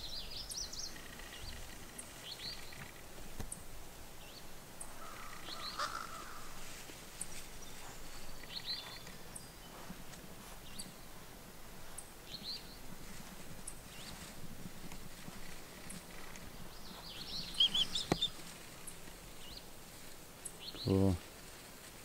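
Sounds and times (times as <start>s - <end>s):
small birds chirping: 0.0s - 21.6s
outdoor background hiss: 0.0s - 22.0s
lower bird call: 4.3s - 6.7s, 15.9s - 19.7s.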